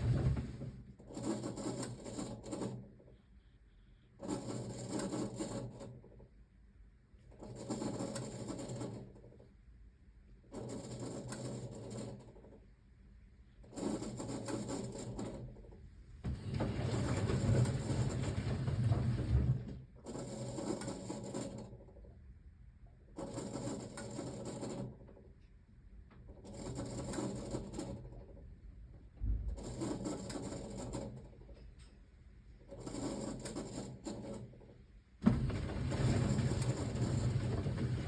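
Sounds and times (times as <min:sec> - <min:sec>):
washing machine drum motor: 0:00.0 - 0:01.0, 0:16.2 - 0:20.3, 0:35.2 - 0:38.0.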